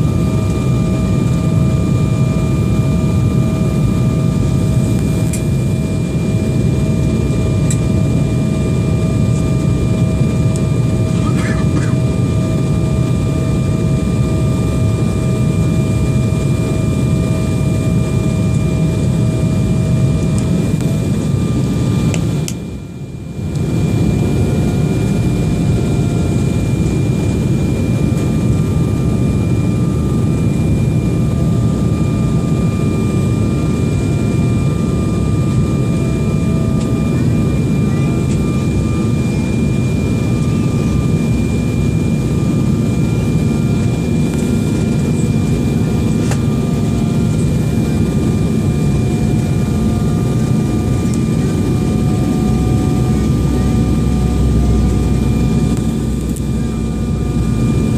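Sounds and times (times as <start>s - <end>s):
high-pitched engine whine: 0.0s - 57.9s
jet airliner engines running: 0.0s - 57.9s.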